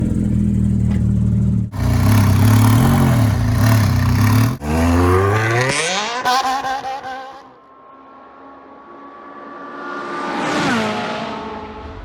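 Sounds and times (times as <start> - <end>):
car engine running and revving: 0.0 - 7.2.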